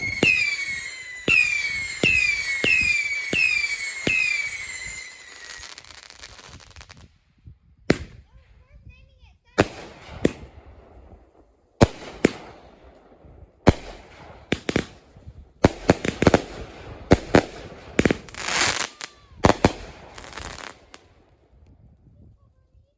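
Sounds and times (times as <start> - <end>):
fireworks shots firing: 0.0 - 7.1, 7.8 - 8.3, 9.6 - 21.2.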